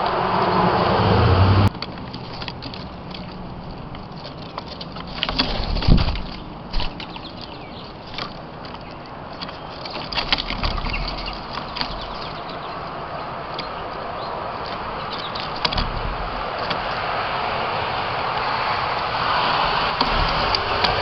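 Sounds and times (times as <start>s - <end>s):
vehicle approaching: 0.0s - 4.5s, 10.6s - 21.0s.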